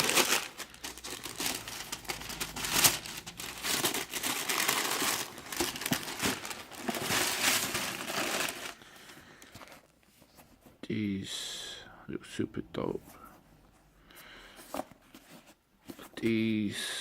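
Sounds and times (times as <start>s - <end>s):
tissue paper crinkling: 0.0s - 8.8s.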